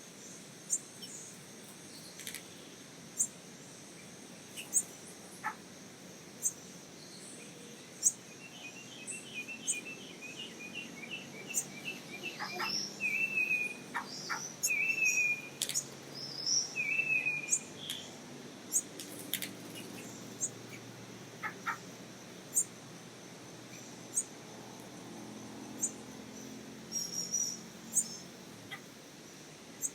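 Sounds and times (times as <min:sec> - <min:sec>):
bird whistling calls: 0:08.0 - 0:18.1, 0:26.9 - 0:28.2.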